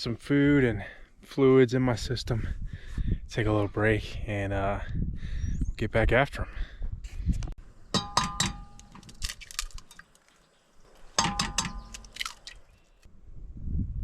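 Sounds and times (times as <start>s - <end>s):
metal objects clanking: 8.0s - 10.0s, 11.2s - 12.4s.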